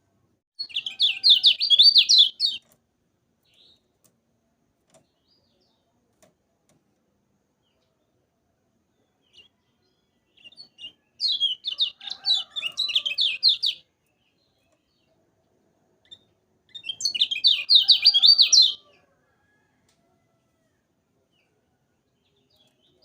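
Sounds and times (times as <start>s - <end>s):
bird chirping rapidly: 0.6s - 2.7s, 10.3s - 13.8s, 16.1s - 18.8s.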